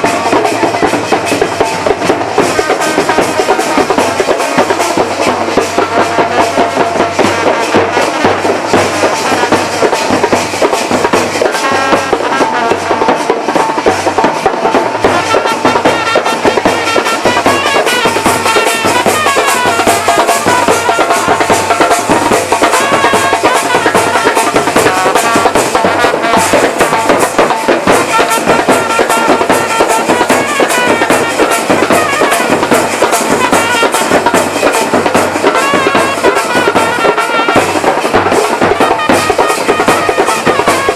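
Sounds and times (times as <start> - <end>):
loud music with busy drumming: 0.0 - 40.9.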